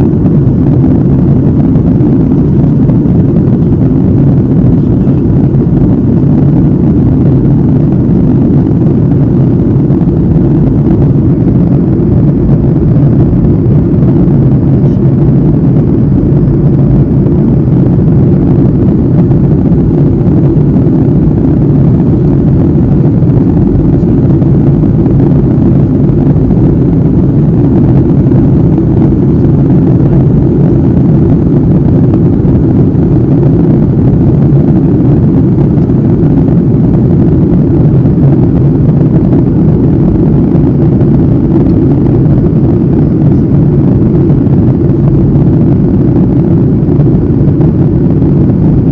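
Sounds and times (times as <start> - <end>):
airliner cabin engine roar: 0.0 - 48.9.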